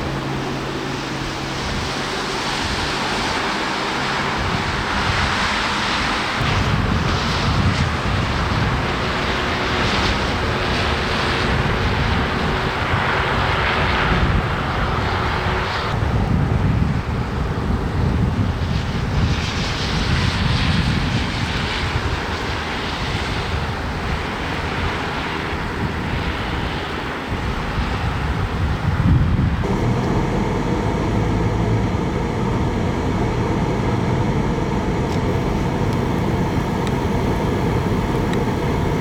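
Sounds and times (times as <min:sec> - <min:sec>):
wind buffeting microphone: 0:04.2 - 0:39.0
traffic passing on snowy road: 0:29.6 - 0:39.0.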